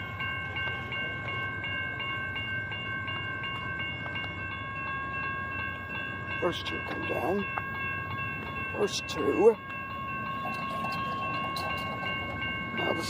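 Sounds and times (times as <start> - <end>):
railroad crossing warning bell: 0.0 - 13.0.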